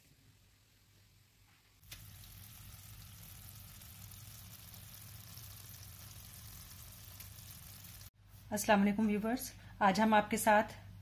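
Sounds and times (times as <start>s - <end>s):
curry sizzling in a pan: 1.8s - 8.2s.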